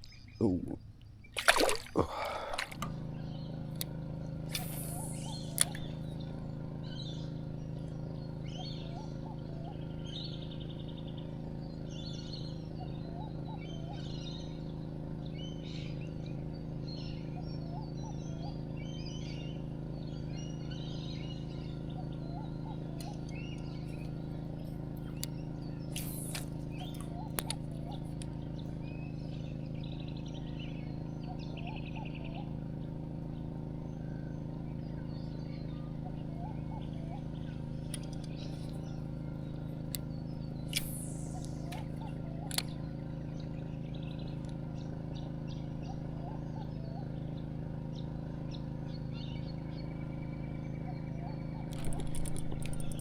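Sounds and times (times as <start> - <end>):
birds calling and chirping: 0.0 - 53.0
steady low hum: 0.0 - 53.0
sharp clicks: 3.7 - 6.0, 25.0 - 28.4, 37.8 - 38.8, 39.9 - 42.8, 51.7 - 53.0
short lower bird call: 4.5 - 6.0.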